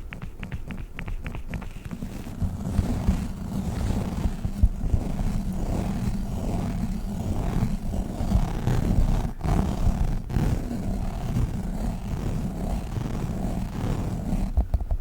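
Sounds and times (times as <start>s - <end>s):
sharp pops: 0.0s - 3.4s.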